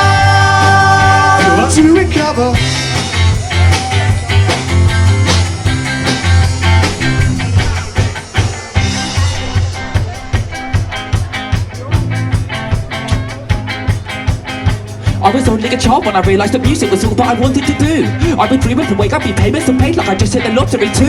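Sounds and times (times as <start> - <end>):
bass line: 0.0 - 21.0
drum kit: 0.0 - 21.0
guitar: 0.0 - 21.0.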